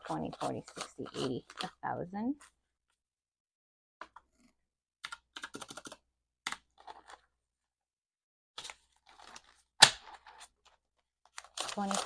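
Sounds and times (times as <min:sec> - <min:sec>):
banknotes rustling: 0:00.0 - 0:01.8, 0:08.6 - 0:12.0.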